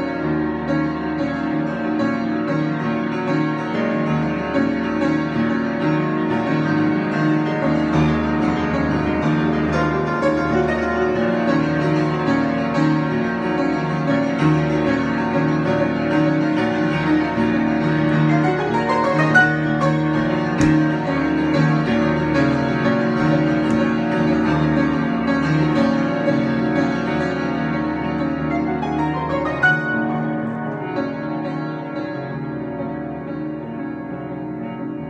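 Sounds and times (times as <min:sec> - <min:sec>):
piano-like keyboard improvisation: 0:00.0 - 0:35.0.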